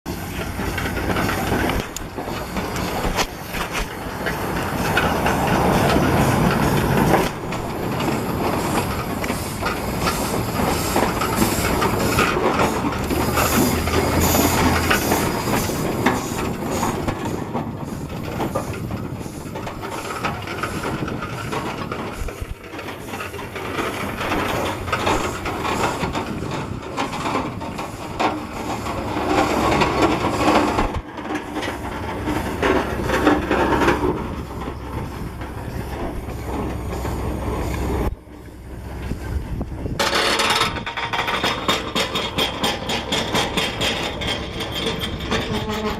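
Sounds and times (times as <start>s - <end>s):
engine knocking: 0.1s - 45.9s
steam hissing: 0.1s - 45.9s.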